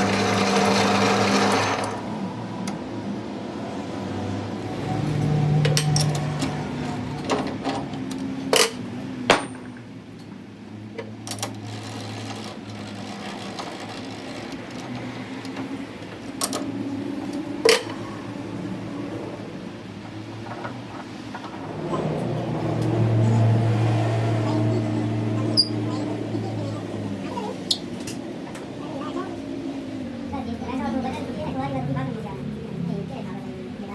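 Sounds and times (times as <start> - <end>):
workshop machine humming: 0.0 - 33.9
sharp metal knocks: 8.5 - 9.8.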